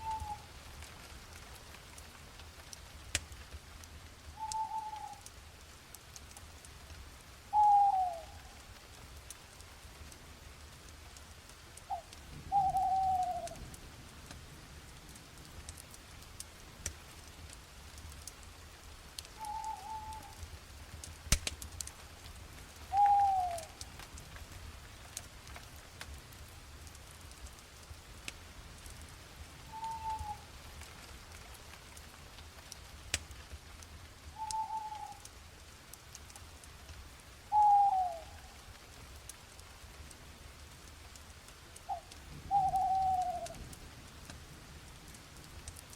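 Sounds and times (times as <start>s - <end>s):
bird calling: 0.0s - 0.5s, 4.4s - 5.2s, 7.5s - 8.4s, 11.9s - 13.6s, 19.4s - 20.4s, 22.9s - 23.8s, 29.7s - 30.5s, 34.4s - 35.2s, 37.5s - 38.5s, 41.9s - 43.6s
campfire crackling: 0.0s - 45.9s.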